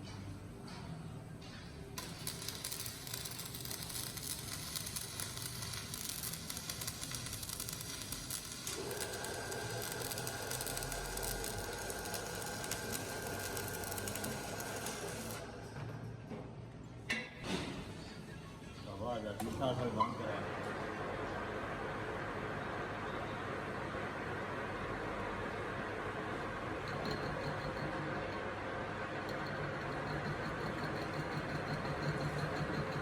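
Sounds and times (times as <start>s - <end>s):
arc welding crackling sizzle: 1.9s - 15.8s, 29.4s - 33.0s.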